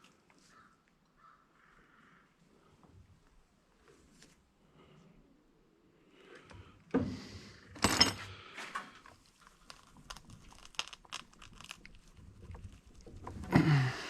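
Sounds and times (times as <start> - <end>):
tools clattering on workbench: 7.7 - 8.9.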